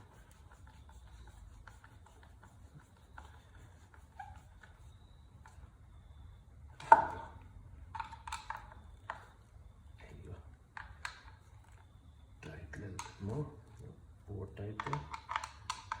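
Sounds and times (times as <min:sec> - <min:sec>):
light clicks and taps: 0:12.8 - 0:13.9, 0:14.7 - 0:16.0.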